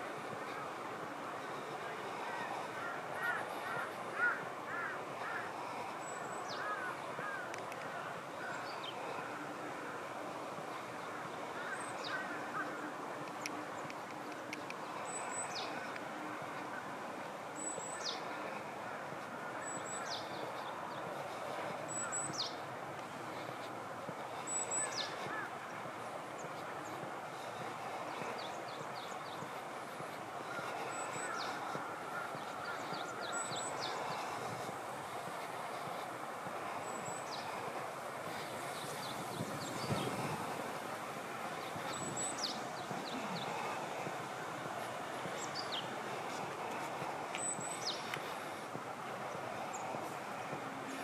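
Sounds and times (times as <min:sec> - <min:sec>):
background hiss: 0:00.0 - 0:51.0
lower bird chirping calls: 0:01.4 - 0:10.0, 0:10.8 - 0:16.9, 0:17.5 - 0:23.6, 0:24.2 - 0:36.1, 0:36.8 - 0:37.7, 0:41.5 - 0:44.0, 0:45.3 - 0:46.4, 0:47.3 - 0:48.6.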